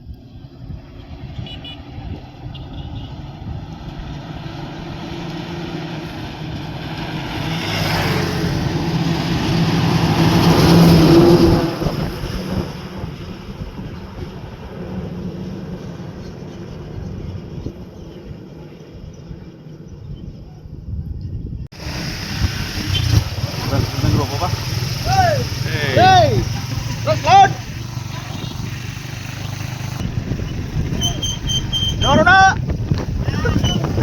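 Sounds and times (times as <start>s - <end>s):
truck engine passing by: 0.4s - 17.6s, 21.8s - 34.0s.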